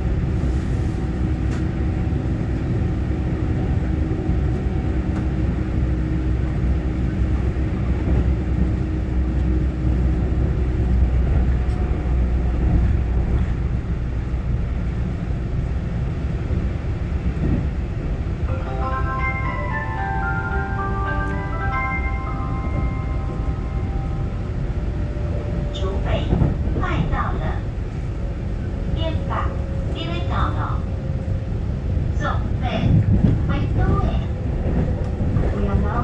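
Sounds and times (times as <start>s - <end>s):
train wheels rumbling on rail: 0.0s - 36.0s
chime melody over speakers: 18.5s - 24.4s.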